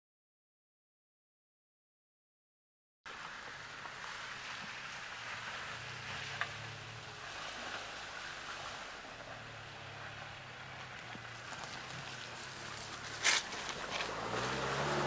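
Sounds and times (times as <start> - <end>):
car engine running: 3.2 - 15.0.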